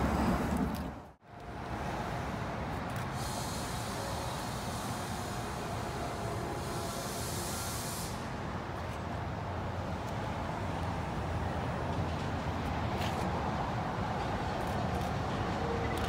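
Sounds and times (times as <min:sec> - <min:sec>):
distant train rumbling: 0:00.0 - 0:16.0
high hiss: 0:03.0 - 0:08.5.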